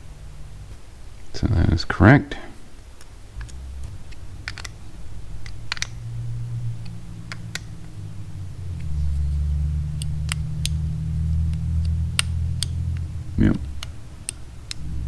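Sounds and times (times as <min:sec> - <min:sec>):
low steady hum: 0:00.0 - 0:15.0
clicks of small parts and tools: 0:04.4 - 0:04.8, 0:05.4 - 0:06.0.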